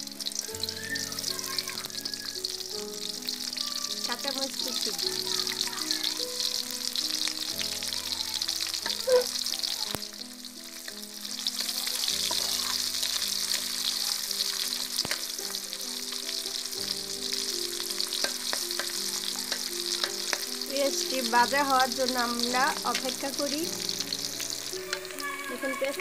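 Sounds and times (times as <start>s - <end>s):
oil sizzling with frying onions: 0.0s - 26.0s
metal spatula clicking on pan: 15.0s - 15.3s, 18.2s - 20.6s.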